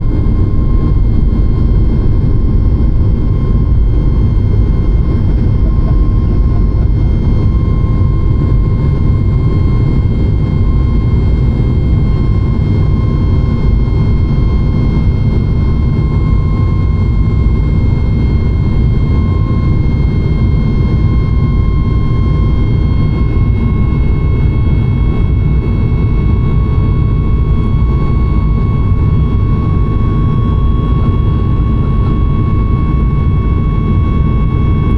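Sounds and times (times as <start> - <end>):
jet engines rumbling and whining: 0.0 - 34.9.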